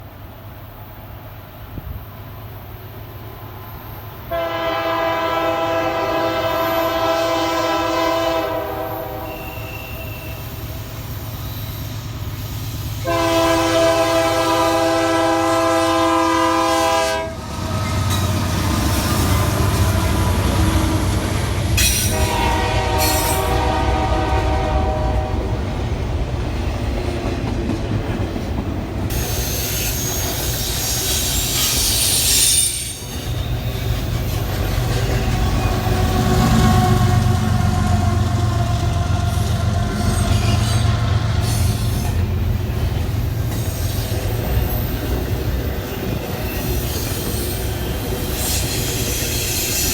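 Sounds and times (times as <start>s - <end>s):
train wheels rumbling on rail: 0.0s - 49.9s
locomotive air horn blasts: 4.3s - 10.5s, 13.0s - 17.5s, 21.9s - 25.6s, 35.8s - 41.9s
high wheel squeal: 8.9s - 13.0s, 29.1s - 49.9s.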